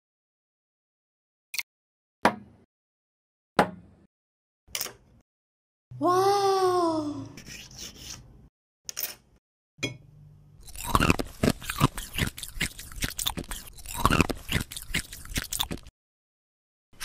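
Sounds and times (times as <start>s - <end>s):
person chewing crunchy food: 10.6s - 15.9s.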